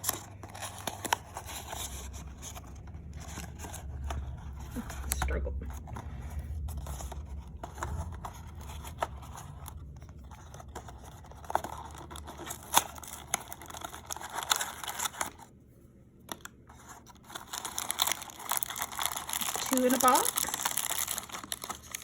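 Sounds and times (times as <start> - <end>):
crinkling packaging: 0.0 - 15.6, 16.2 - 22.0
packaging being torn open: 11.3 - 15.4, 17.2 - 22.0.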